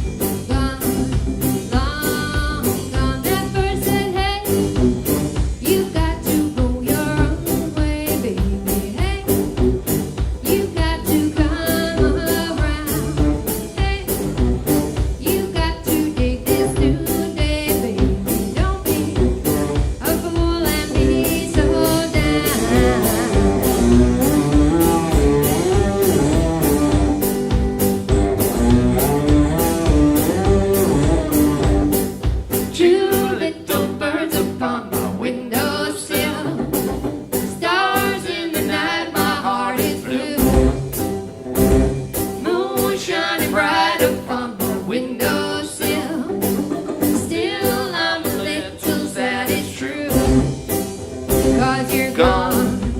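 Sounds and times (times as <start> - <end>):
live band music: 0.0 - 52.9
person singing: 10.4 - 14.3, 15.2 - 27.1, 32.8 - 36.9, 37.5 - 40.9, 42.4 - 50.5, 51.3 - 52.9.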